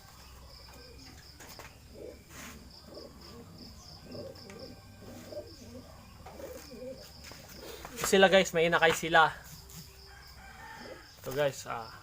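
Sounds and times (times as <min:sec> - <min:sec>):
crickets chirping: 0:00.0 - 0:12.0
pigeons cooing: 0:00.4 - 0:08.3, 0:10.4 - 0:11.3.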